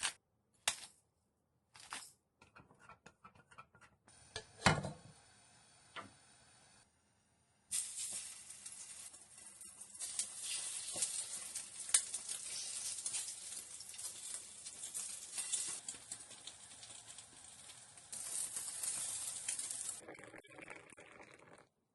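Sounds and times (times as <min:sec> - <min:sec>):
food sizzling in a pan: 0:04.1 - 0:06.8, 0:07.7 - 0:20.3.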